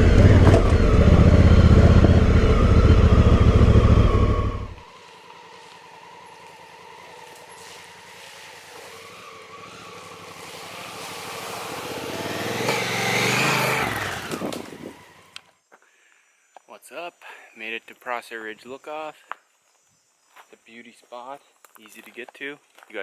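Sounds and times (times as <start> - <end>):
motorcycle engine running: 0.0 - 15.2
tyre and trail noise: 0.0 - 15.9, 19.3 - 23.0.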